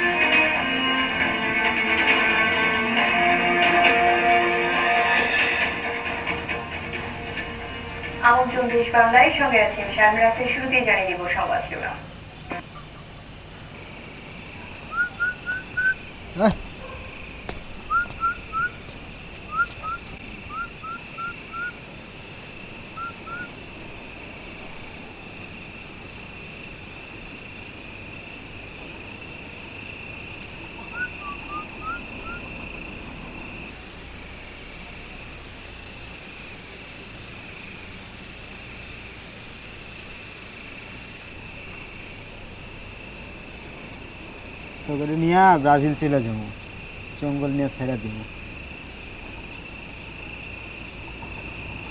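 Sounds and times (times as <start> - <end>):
crickets trilling: 0.0 - 51.9
short rising chirps: 17.8 - 18.8.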